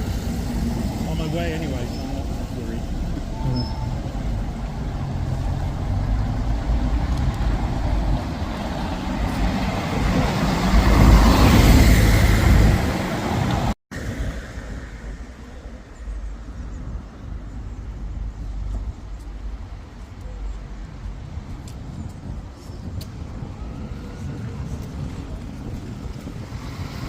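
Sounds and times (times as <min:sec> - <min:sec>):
vehicle passing by: 0:00.1 - 0:14.9.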